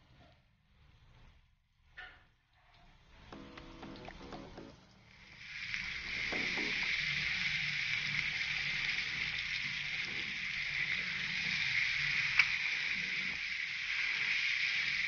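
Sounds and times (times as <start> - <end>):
eggs sizzling in hot oil: 3.8 - 15.0.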